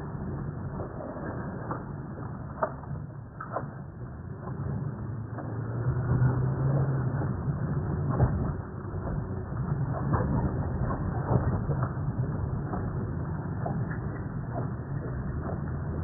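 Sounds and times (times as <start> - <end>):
road noise: 4.8 - 8.3.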